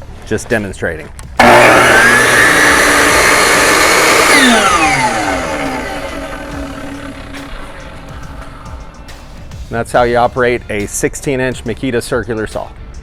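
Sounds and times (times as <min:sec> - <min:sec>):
circular saw motor whine: 0:01.4 - 0:09.0.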